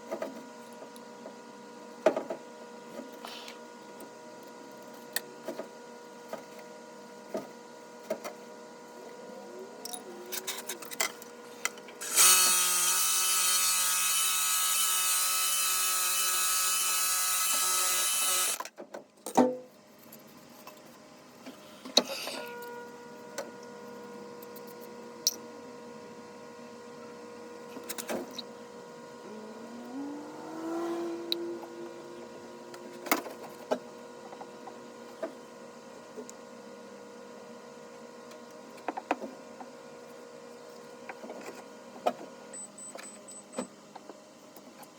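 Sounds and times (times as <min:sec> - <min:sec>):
small motor whirring: 0:12.0 - 0:18.6, 0:29.3 - 0:32.1.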